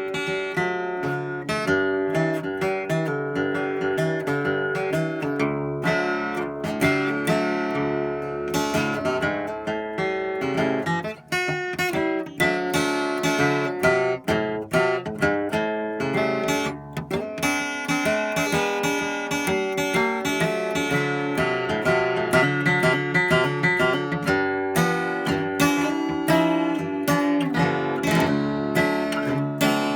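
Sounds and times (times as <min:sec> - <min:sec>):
acoustic guitar playing: 0:00.0 - 0:29.9.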